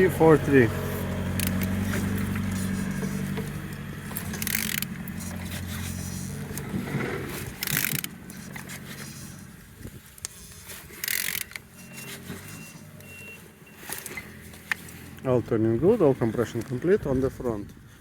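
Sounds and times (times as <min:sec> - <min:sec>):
steady low hum: 0:00.0 - 0:10.6
engine turned over by hand: 0:00.0 - 0:17.4
mechanical ratcheting: 0:00.8 - 0:09.5, 0:10.1 - 0:12.8.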